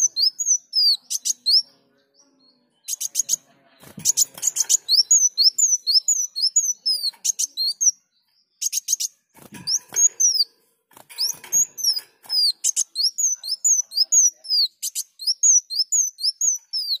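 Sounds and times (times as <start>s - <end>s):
bird singing high chirps: 0.0s - 17.0s.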